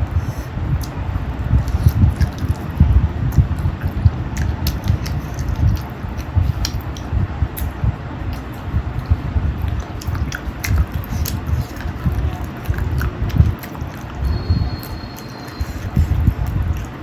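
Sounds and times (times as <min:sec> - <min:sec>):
close chewing and biting: 0:00.0 - 0:17.0
wet mouth smacks: 0:00.2 - 0:17.0.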